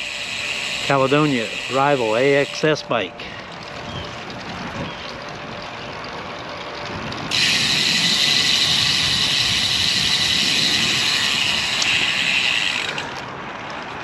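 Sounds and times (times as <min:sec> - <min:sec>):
bicycle freehub buzzing: 0:00.0 - 0:14.0
wind and road noise: 0:00.0 - 0:14.0.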